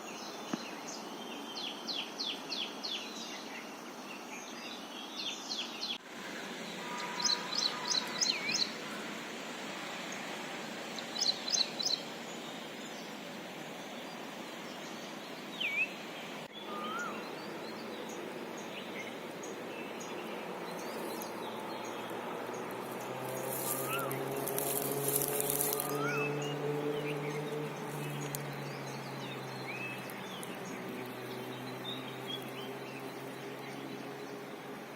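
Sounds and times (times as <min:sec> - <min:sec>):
background hiss: 0:00.0 - 0:34.9
birds chirping and whistling: 0:16.5 - 0:34.5.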